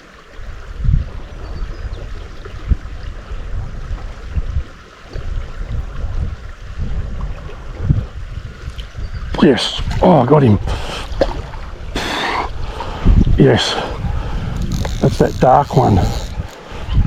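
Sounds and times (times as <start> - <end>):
river water flowing: 0.0 - 17.0
low rumbles and thumps: 14.0 - 16.6.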